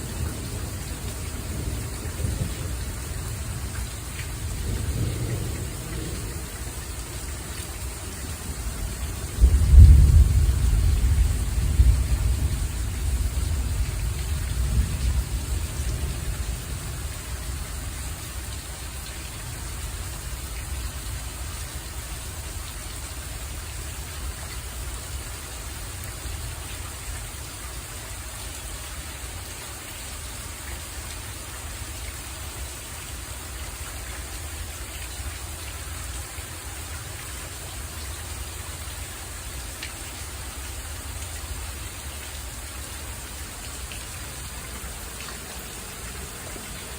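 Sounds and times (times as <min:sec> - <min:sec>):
low rumble of thunder: 0:00.0 - 0:26.4, 0:42.7 - 0:46.9
steady rain falling: 0:00.0 - 0:46.9.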